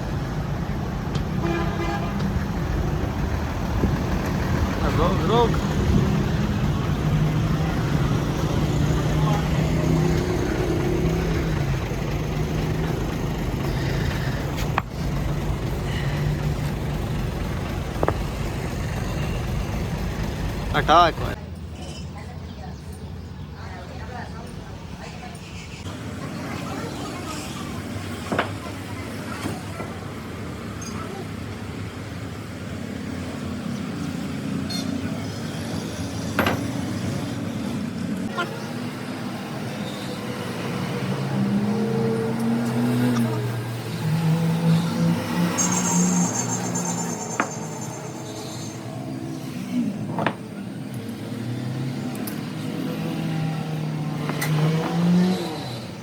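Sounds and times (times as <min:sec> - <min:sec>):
low engine rumble: 0:00.0 - 0:33.4.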